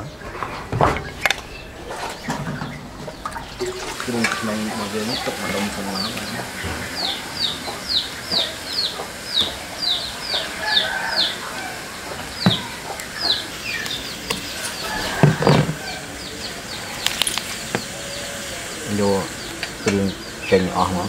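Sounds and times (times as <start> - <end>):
bird chirping: 0.0 - 21.0.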